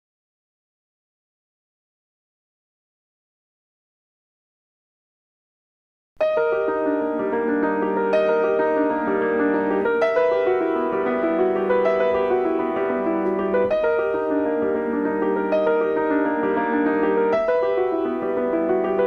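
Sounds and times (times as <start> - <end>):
gentle piano playing: 6.2 - 19.0.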